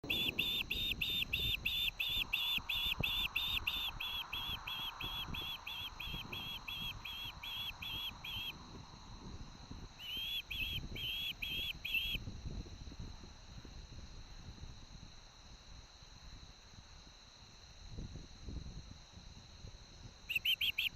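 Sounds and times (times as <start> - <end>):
wind buffeting microphone: 0.0 - 16.4
bird whistled call notes: 0.1 - 8.5, 10.0 - 12.2, 20.3 - 20.9.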